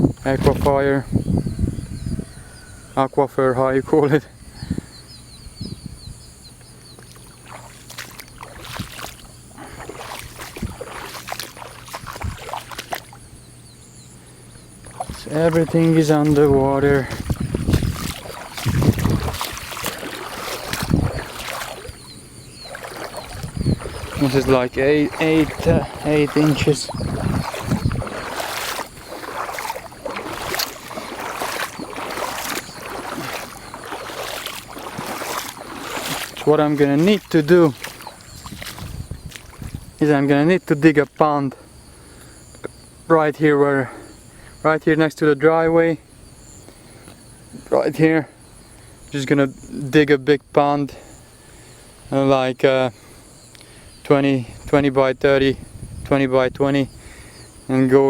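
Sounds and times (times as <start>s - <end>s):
footsteps splashing through water: 0.0s - 0.9s, 6.6s - 41.2s.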